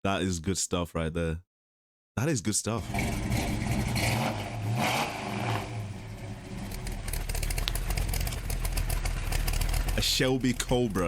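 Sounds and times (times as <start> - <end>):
car engine revving: 2.8 - 11.0.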